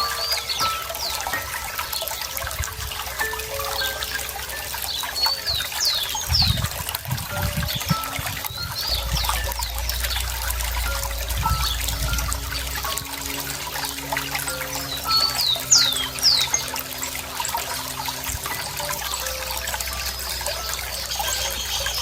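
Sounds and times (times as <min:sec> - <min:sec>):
water trickling: 0:00.0 - 0:22.0.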